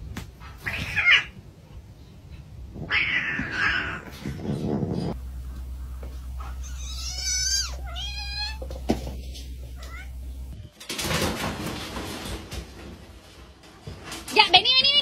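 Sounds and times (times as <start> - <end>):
cat meowing: 2.9 - 4.1, 6.6 - 8.8, 9.6 - 10.2
noisy hiss: 5.1 - 11.0.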